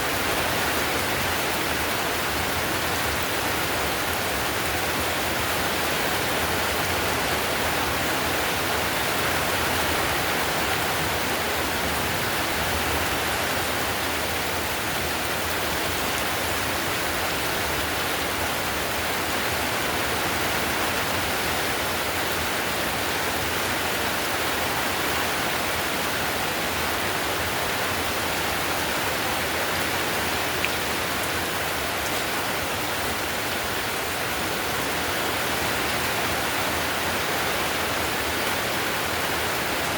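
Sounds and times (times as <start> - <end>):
heavy rain on roof tiles: 0.0 - 39.9.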